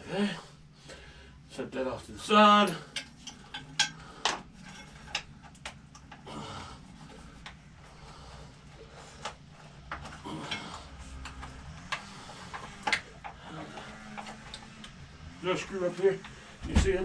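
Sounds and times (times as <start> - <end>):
hand tools clicking and knocking: 2.6 - 7.7, 8.5 - 15.3
small metal parts handled: 2.8 - 6.2.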